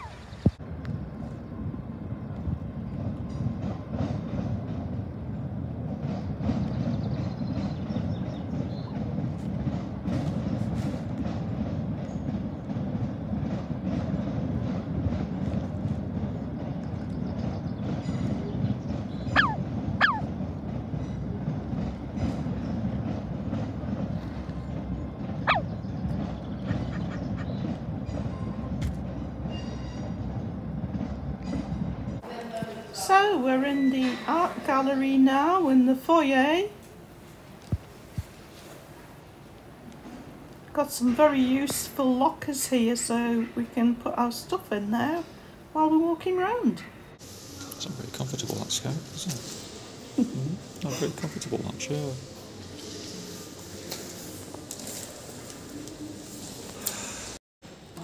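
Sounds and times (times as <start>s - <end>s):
train rumbling past: 0.0s - 58.0s.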